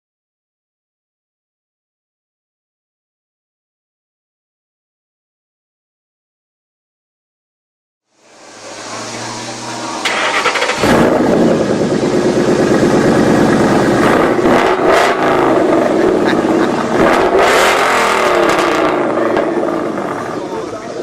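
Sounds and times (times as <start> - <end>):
car engine revving: 8.2 - 21.0.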